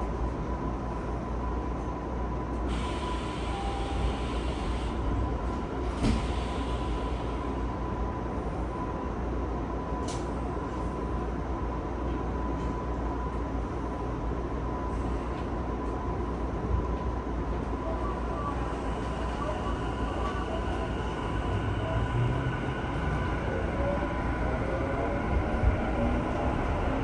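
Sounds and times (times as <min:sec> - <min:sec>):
train wheels rumbling on rail: 0:01.7 - 0:08.9.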